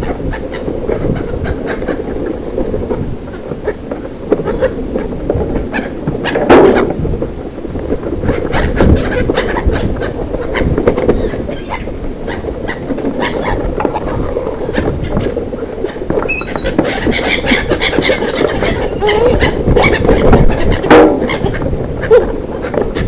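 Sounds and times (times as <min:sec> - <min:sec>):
bird chirps: 0:16.3 - 0:16.8
clattering and knocking: 0:20.7 - 0:21.6.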